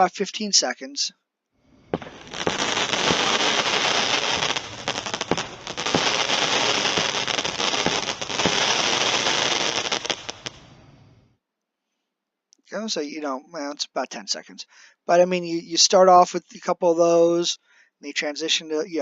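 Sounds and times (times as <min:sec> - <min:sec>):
firework cake crackling and popping: 0:01.9 - 0:10.8.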